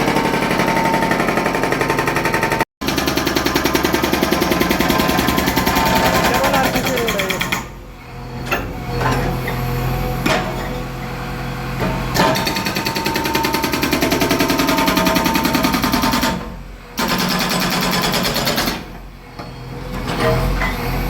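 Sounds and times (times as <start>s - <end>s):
hydraulic breaker hammering concrete: 0.0s - 7.8s, 12.0s - 19.1s.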